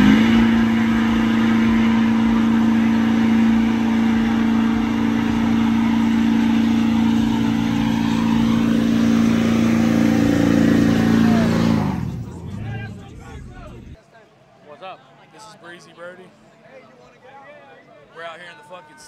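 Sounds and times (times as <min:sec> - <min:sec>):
truck engine at high rpm: 0:00.0 - 0:14.0.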